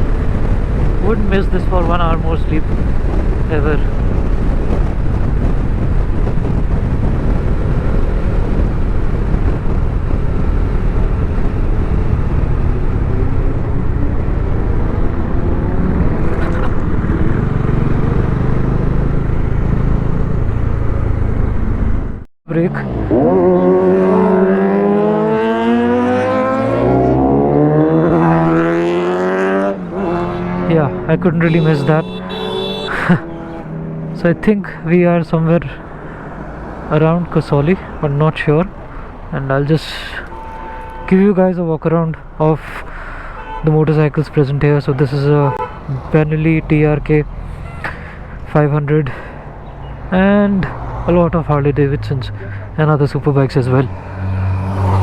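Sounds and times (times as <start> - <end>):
wind buffeting microphone: 0.0 - 22.2
motorcycle engines running: 0.0 - 39.7.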